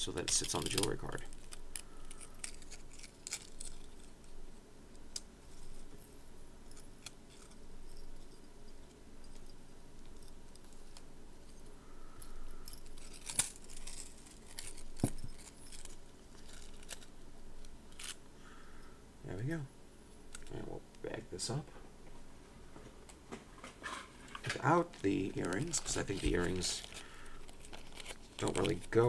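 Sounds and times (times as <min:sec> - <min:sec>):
metal chain jingling: 0:11.4 - 0:17.1
cardboard rustling: 0:23.7 - 0:29.0.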